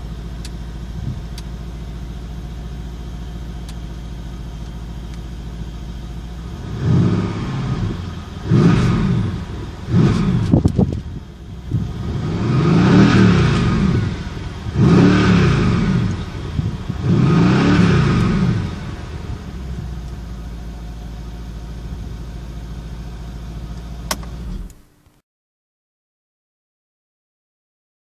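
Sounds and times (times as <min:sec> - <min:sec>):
car engine revving and idling: 0:00.0 - 0:24.8
sharp click: 0:24.1 - 0:24.8.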